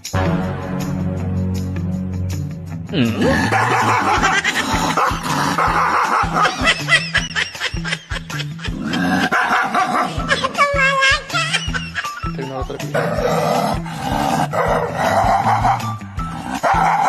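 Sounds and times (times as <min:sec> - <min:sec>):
music with repeating bass beat: 0:00.0 - 0:07.4
dog barking and yipping: 0:03.4 - 0:12.3, 0:13.0 - 0:17.0.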